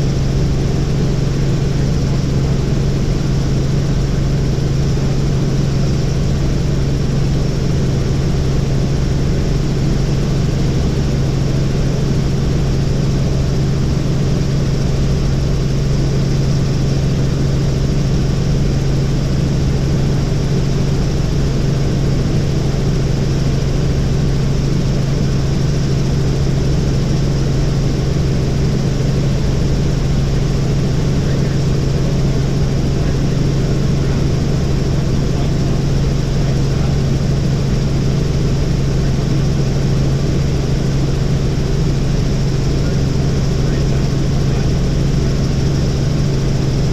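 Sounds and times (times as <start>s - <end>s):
helicopter rotor and engine hum: 0.0s - 46.9s.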